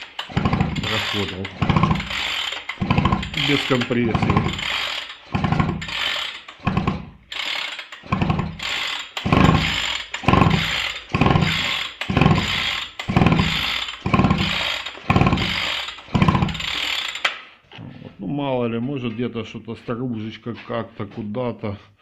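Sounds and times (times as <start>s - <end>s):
engine pull-starter whirring rattle: 0.0s - 17.4s.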